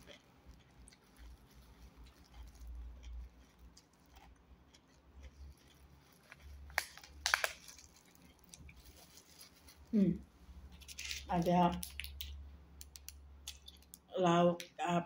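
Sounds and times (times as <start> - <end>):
plastic gloves handling food: 0.0 - 4.3, 5.2 - 14.1
person chewing: 0.0 - 10.0, 10.6 - 14.1
sharp crackles: 5.3 - 10.0.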